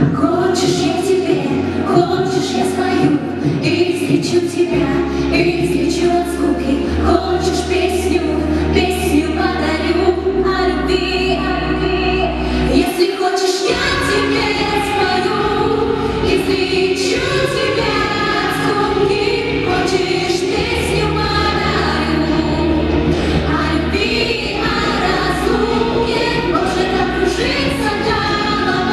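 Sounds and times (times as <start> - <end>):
choir singing: 0.0 - 28.9
sustained bass notes: 13.7 - 28.9.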